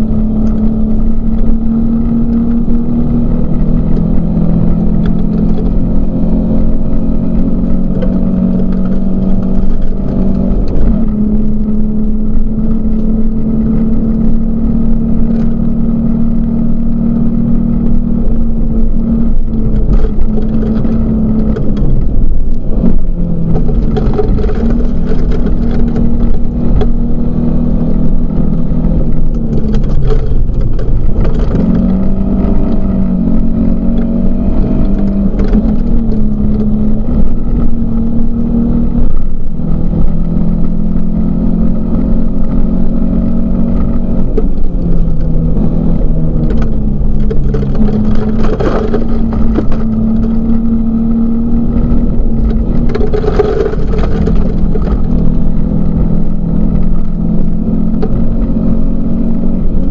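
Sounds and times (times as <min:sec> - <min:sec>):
rally car engine running hard: 0:00.0 - 0:59.9
gravel knocking against car: 0:45.1 - 0:50.6, 0:52.3 - 0:55.4.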